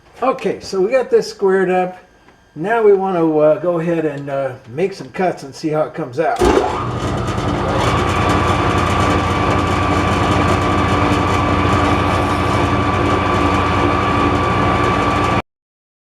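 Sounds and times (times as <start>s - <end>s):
metal-cutting machine whining: 6.4s - 15.4s.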